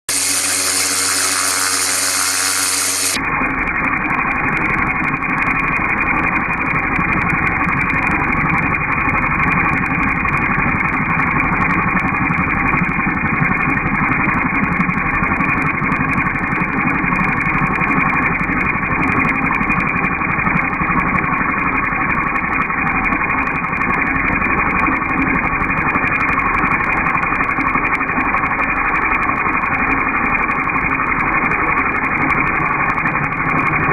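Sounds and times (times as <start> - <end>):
pressure washer drone: 0.0 - 12.4, 30.2 - 33.9
bright steady-pitched tone: 0.1 - 8.6.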